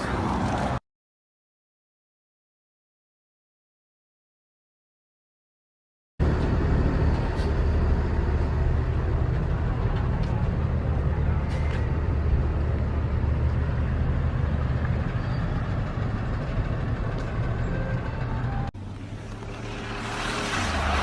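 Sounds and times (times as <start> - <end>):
vehicle engine and road noise: 0.0 - 0.8, 6.2 - 21.0.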